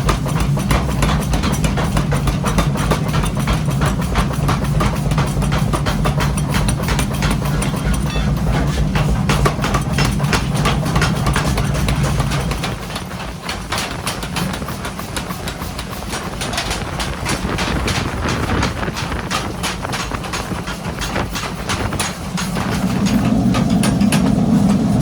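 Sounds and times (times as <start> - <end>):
low machine hum: 0.0 - 25.0
hammer striking metal: 0.2 - 12.6.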